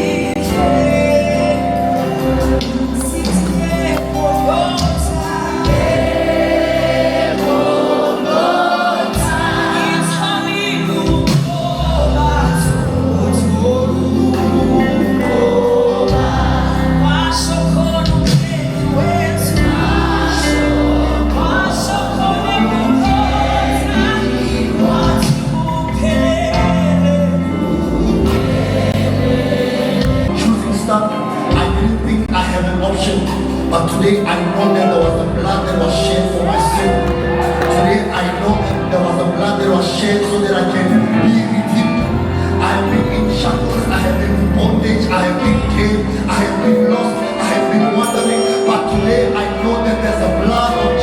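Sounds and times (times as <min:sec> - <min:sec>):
bass: 0:00.0 - 0:08.2, 0:09.1 - 0:51.0
gospel choir singing: 0:00.0 - 0:51.0
keyboard chords: 0:00.0 - 0:51.0.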